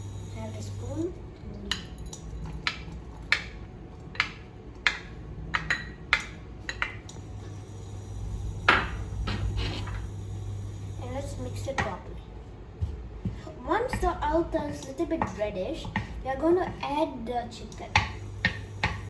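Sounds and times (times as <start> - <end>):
low steady hum: 0.0 - 19.0
spoon scraping a frying pan: 9.3 - 10.0.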